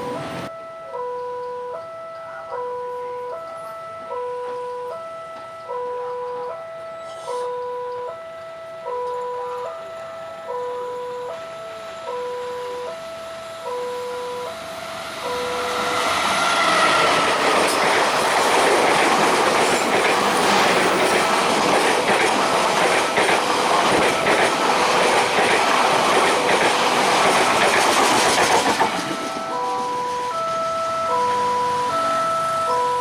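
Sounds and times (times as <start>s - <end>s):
level crossing warning tones: 0.0s - 33.0s
train wheels clattering on rails: 10.5s - 32.2s.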